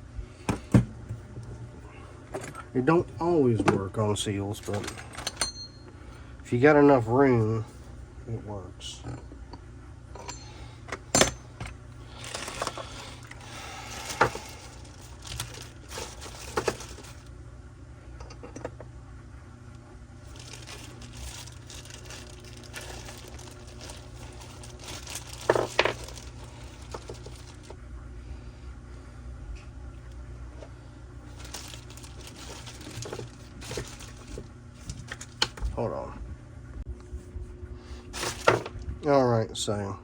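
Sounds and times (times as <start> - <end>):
rustling: 12.1 - 17.3, 20.2 - 27.8, 31.3 - 35.5.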